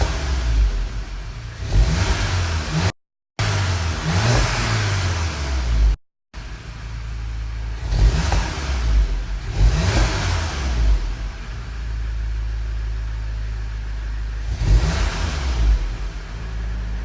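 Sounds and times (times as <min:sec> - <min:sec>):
car engine idling: 0:00.0 - 0:17.0
car engine revving: 0:00.0 - 0:17.0.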